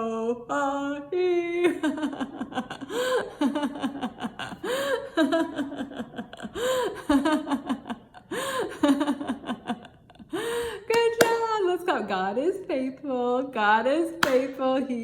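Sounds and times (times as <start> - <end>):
woman laughing: 1.6 - 10.6.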